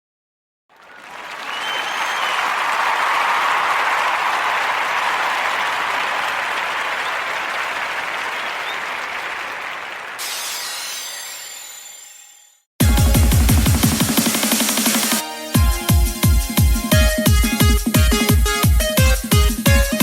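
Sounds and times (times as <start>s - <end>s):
crowd applauding: 0.7s - 10.5s.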